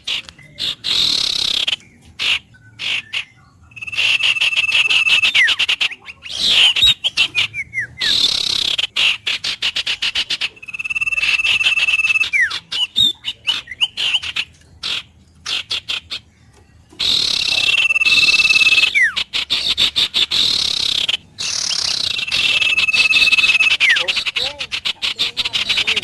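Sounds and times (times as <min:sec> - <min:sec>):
bird rapid pulsing trill: 0:00.0 - 0:26.0
bird whistled note: 0:00.9 - 0:08.8, 0:10.4 - 0:14.3, 0:17.0 - 0:24.3.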